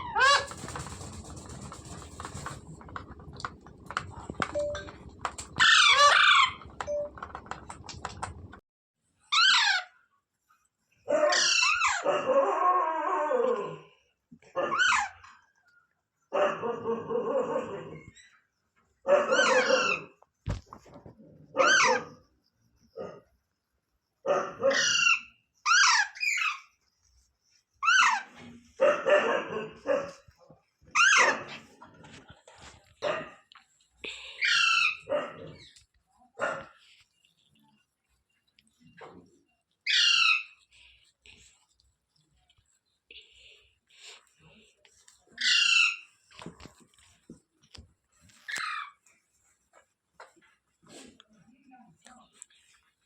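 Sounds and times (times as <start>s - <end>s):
parrot clicking: 0.5s - 8.6s
parrot screeching: 5.6s - 6.7s, 9.3s - 10.0s, 11.3s - 12.0s, 21.6s - 22.1s, 24.7s - 26.6s, 39.8s - 40.6s, 45.4s - 46.1s
parrot harsh calls: 9.3s - 10.0s, 34.4s - 35.1s, 39.8s - 40.6s, 45.4s - 46.1s.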